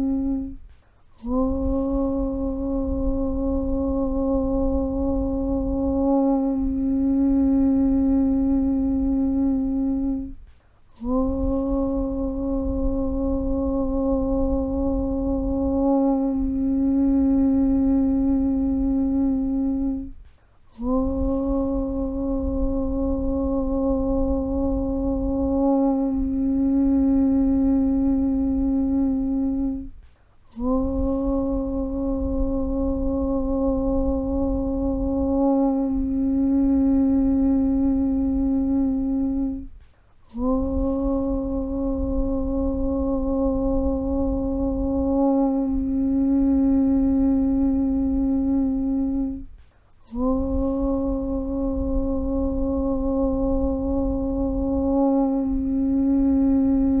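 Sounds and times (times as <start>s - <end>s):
low rumble: 0.0s - 30.0s
person chanting om: 0.0s - 57.0s.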